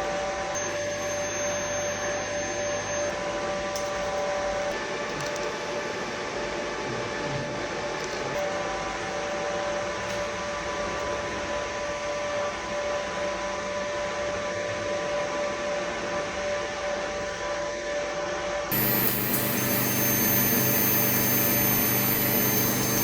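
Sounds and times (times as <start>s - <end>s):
faint steady tone: 0.6s - 3.2s, 18.7s - 23.0s
welding system hissing: 18.7s - 23.0s.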